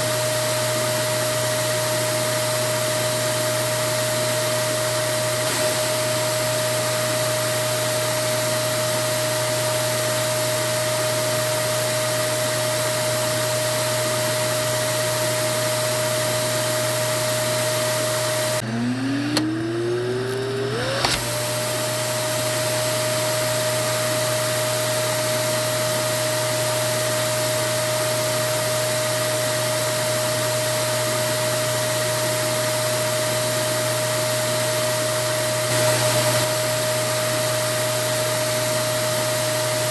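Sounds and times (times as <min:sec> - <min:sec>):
vacuum cleaner motor whining: 0:00.0 - 0:39.9
vacuum cleaner click: 0:04.8 - 0:07.5, 0:17.7 - 0:23.9, 0:35.6 - 0:36.8.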